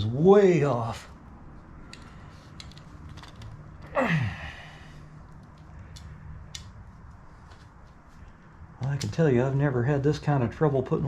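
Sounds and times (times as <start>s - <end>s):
clicks of small parts handled: 1.9s - 3.9s, 5.2s - 6.8s
man sighing: 3.9s - 5.0s.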